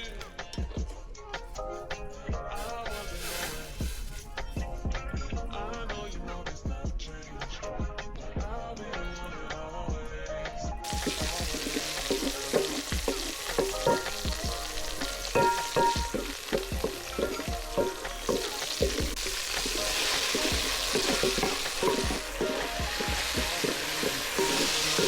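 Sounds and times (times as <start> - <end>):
food sizzling in a pan: 2.5 - 4.6, 10.8 - 25.0
spoon knocking and scraping pan: 2.6 - 4.4, 10.8 - 25.0.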